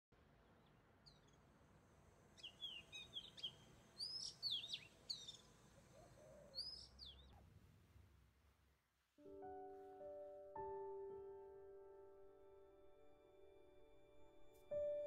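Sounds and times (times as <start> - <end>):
birds chirping and whistling: 2.4 - 5.5, 6.2 - 7.3.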